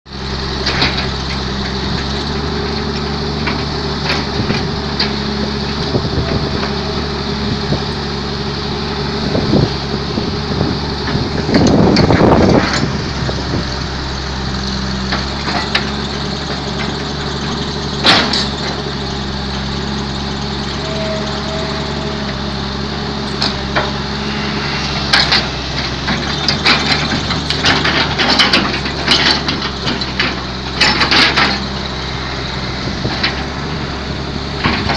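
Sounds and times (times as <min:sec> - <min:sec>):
excavator diesel engine running: 0:00.1 - 0:34.9
engine rushing surge: 0:18.0 - 0:29.1
metal knocks and clanks: 0:23.2 - 0:31.7.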